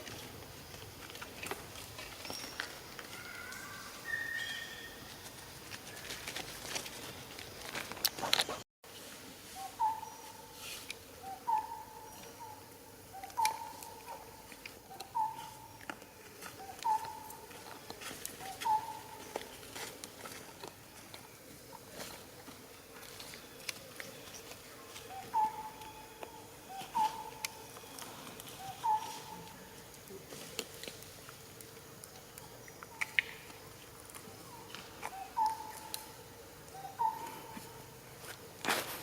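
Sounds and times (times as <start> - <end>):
bird calling: 2.3 - 5.1, 9.6 - 10.3, 11.2 - 17.5, 18.4 - 19.5, 24.1 - 29.7, 34.4 - 37.9.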